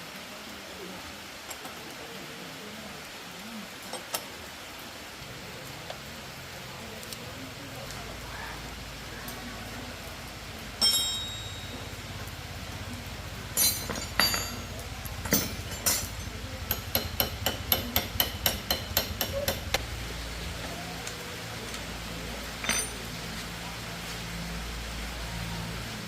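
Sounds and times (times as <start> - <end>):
hammer striking metal: 13.6 - 19.8.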